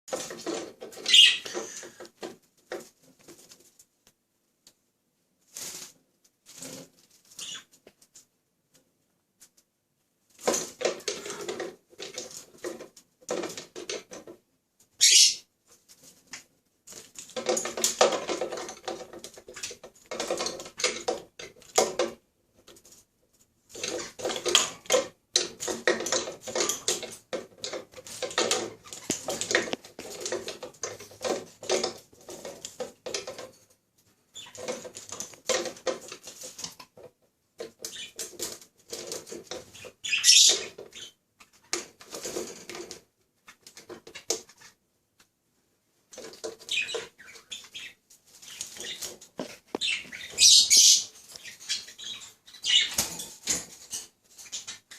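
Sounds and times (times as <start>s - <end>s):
parrot screech: 1.1s - 1.9s, 15.0s - 15.4s.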